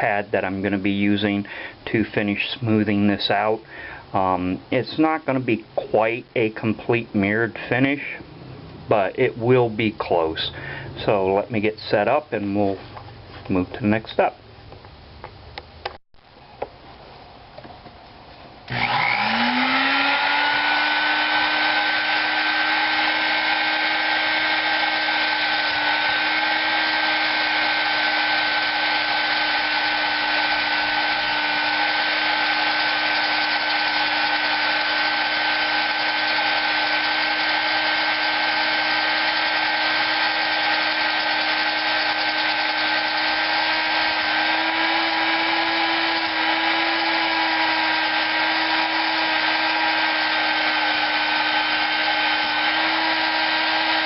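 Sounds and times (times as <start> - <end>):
electric rotary tool whining: 18.7 - 54.0.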